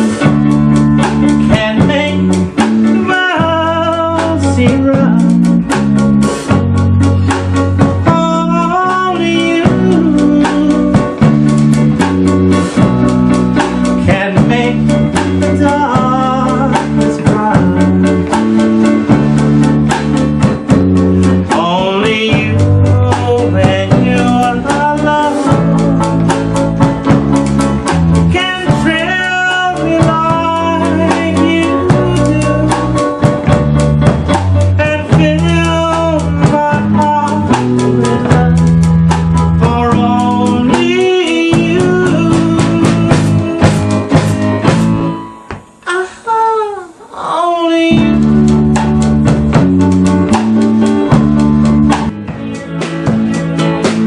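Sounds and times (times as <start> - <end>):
walking bass line: 0.0 - 45.8, 47.9 - 54.0
drum kit beat: 0.0 - 47.0, 47.8 - 54.0
guitar: 0.0 - 54.0
person singing: 1.1 - 5.7, 7.2 - 11.4, 13.6 - 19.1, 21.3 - 26.7, 28.2 - 33.4, 34.6 - 44.7, 45.8 - 49.7.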